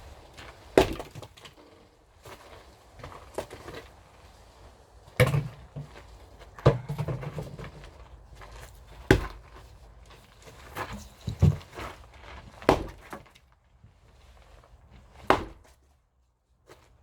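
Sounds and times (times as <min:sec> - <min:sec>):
firewood splitting strikes: 0:00.6 - 0:01.6, 0:05.2 - 0:09.6, 0:12.6 - 0:13.3, 0:15.2 - 0:15.6.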